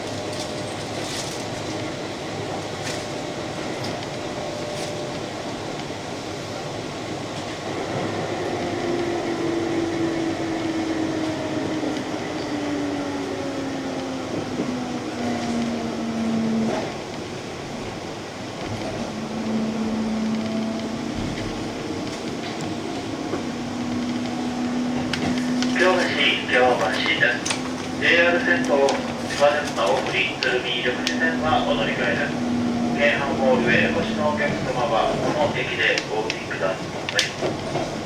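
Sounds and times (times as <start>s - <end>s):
train wheel clicks over rail joints: 26.7s - 31.2s.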